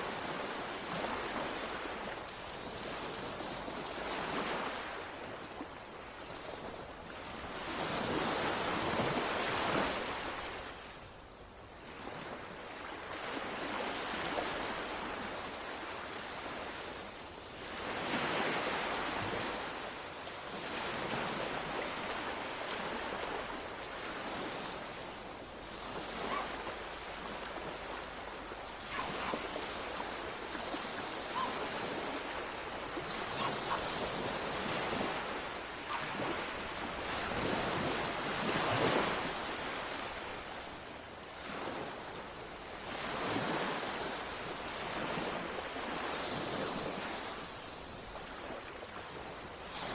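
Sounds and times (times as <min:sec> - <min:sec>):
sea waves breaking on shore: 0:00.0 - 0:49.9.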